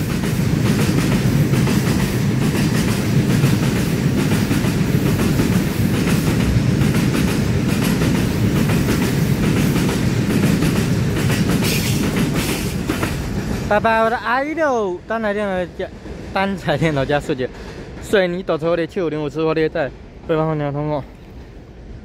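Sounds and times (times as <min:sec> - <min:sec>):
wheels clicking over rail joints: 0:00.0 - 0:13.8
freight train wagons rumbling: 0:00.0 - 0:22.0.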